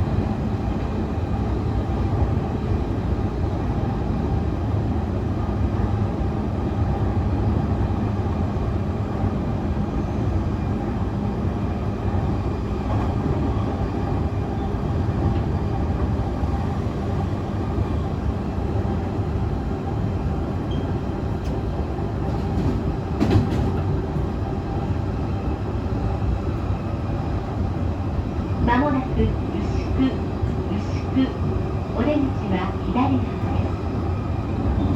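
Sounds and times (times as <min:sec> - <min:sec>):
train wheels rumbling on rail: 0:00.0 - 0:34.9.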